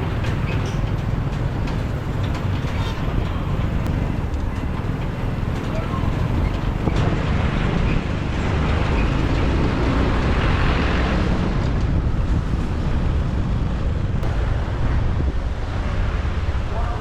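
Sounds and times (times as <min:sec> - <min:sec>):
motorbike road noise: 0:00.0 - 0:17.0
wind rush on microphone: 0:00.0 - 0:17.0.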